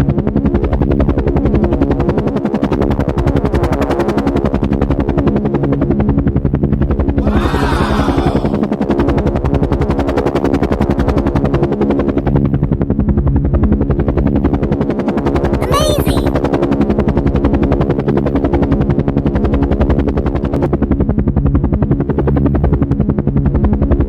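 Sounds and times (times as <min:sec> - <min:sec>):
high-pitched voice-like cry: 0:07.2 - 0:08.6, 0:15.6 - 0:16.4.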